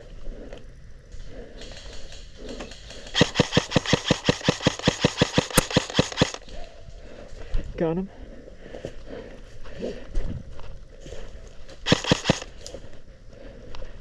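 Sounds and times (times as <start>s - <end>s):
airsoft gun firing rapid shots: 2.0s - 6.5s, 11.9s - 12.6s.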